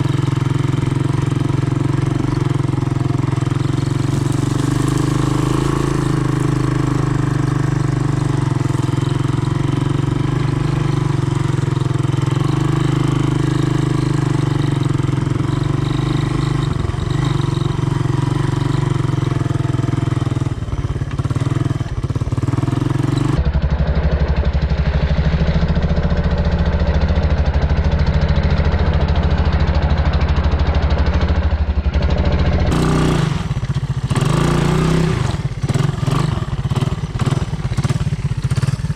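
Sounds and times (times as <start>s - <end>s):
single-cylinder engine running: 0.0s - 38.9s.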